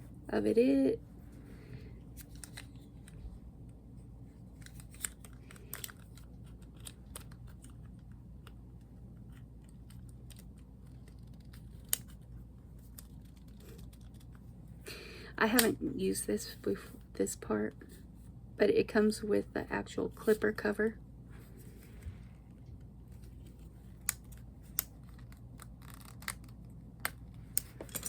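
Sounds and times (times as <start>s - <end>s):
plastic parts clicking and tapping: 4.6s - 8.6s.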